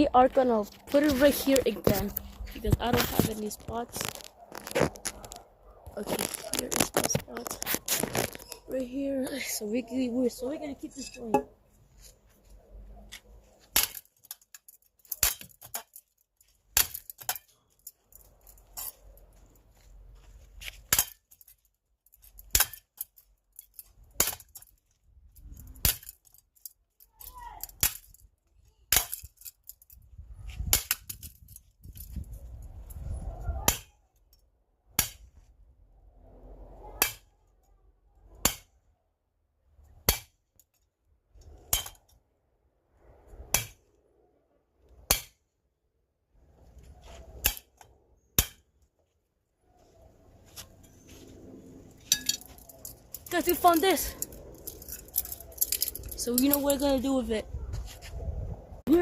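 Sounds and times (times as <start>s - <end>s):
fan parts rumbling and scraping: 0.0s - 26.7s, 28.9s - 33.7s, 49.8s - 59.0s.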